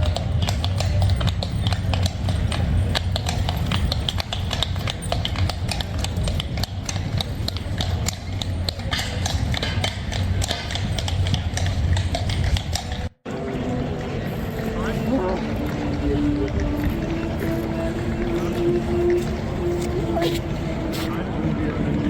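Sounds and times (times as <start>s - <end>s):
hooves on wet cobblestones: 0.0s - 21.9s.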